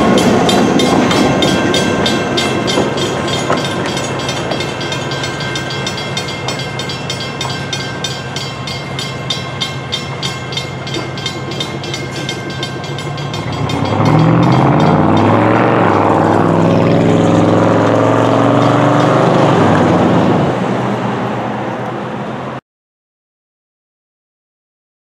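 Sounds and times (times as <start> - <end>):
train wheels clicking over rail joints: 0.0 - 17.5
train rumble: 0.0 - 22.6.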